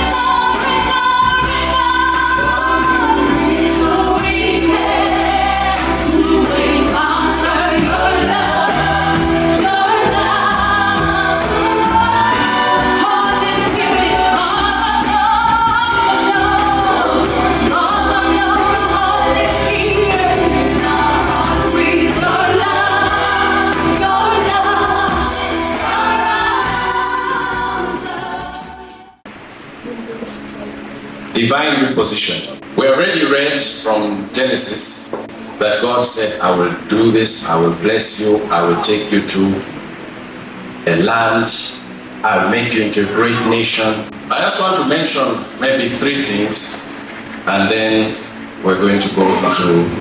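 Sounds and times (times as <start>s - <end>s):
band with bass and drums: 0.0s - 28.5s
group singing gospel song: 0.0s - 29.3s.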